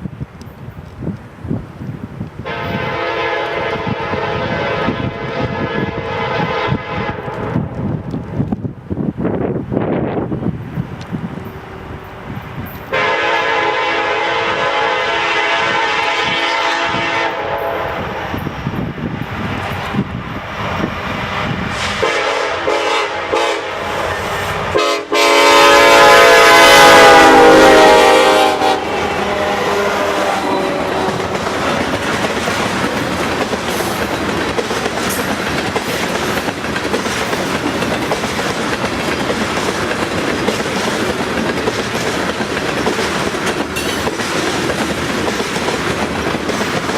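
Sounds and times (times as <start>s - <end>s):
clickety-clack of train cars: 2.2s - 23.5s, 29.3s - 46.9s
diesel locomotive horn blasts: 2.4s - 7.7s, 12.9s - 18.4s, 21.7s - 31.7s.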